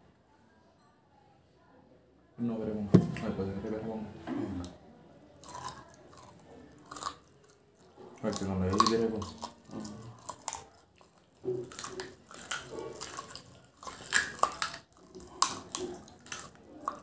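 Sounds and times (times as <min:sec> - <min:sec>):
chewing with mouth clicks: 0:05.4 - 0:17.0.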